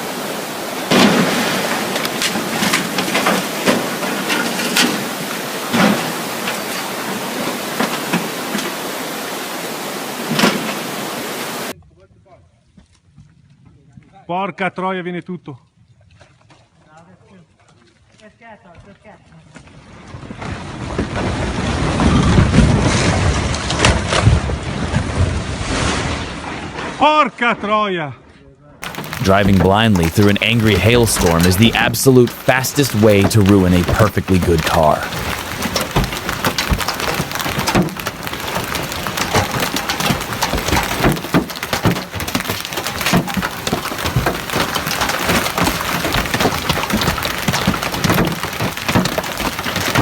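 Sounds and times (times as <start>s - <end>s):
hailstones pelting a car: 0.0s - 11.0s, 28.8s - 50.0s
sharp knocks: 28.8s - 50.0s.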